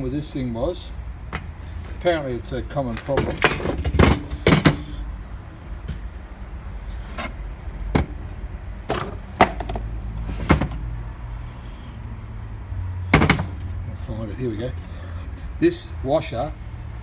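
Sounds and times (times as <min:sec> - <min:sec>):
metal tools clicking and knocking: 0:02.7 - 0:05.0.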